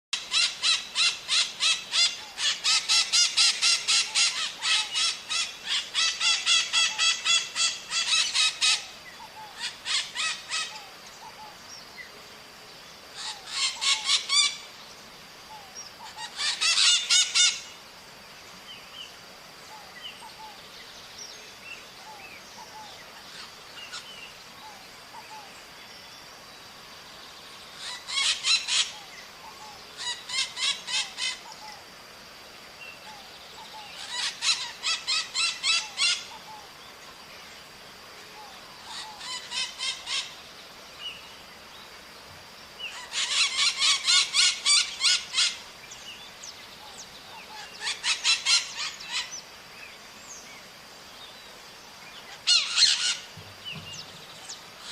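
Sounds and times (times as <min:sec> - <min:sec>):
parrots screeching: 0:00.2 - 0:08.9, 0:09.6 - 0:10.8, 0:13.2 - 0:14.6, 0:16.1 - 0:17.7, 0:27.8 - 0:29.0, 0:30.0 - 0:31.4, 0:34.0 - 0:36.3, 0:38.9 - 0:40.3, 0:42.9 - 0:45.6, 0:47.6 - 0:49.3, 0:52.4 - 0:53.3.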